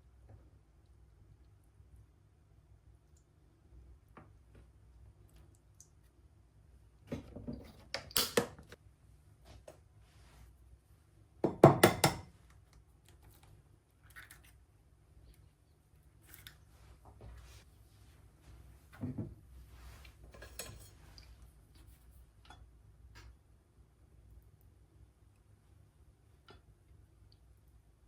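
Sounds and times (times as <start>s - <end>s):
kitchenware clattering: 11.5s - 12.3s, 20.3s - 21.2s.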